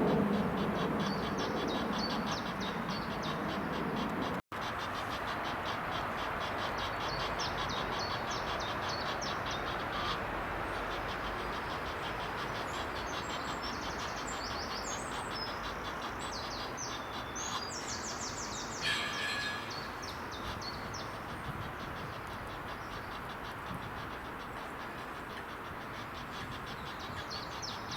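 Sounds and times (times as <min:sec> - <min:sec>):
steady background hum: 0:00.0 - 0:27.9
small songbirds singing: 0:06.7 - 0:23.8.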